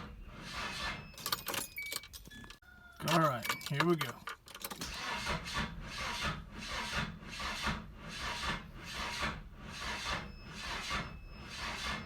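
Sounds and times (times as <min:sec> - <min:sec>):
starter slowly cranking engine: 0:04.8 - 0:12.0.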